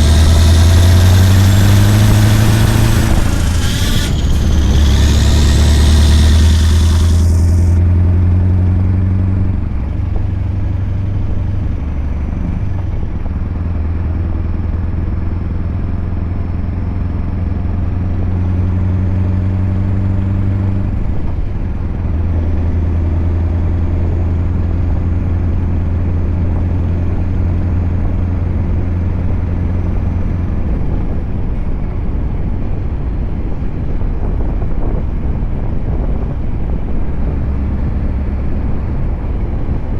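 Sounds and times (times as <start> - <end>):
hiss: 0.0 - 7.8
diesel truck engine drone: 0.0 - 39.9.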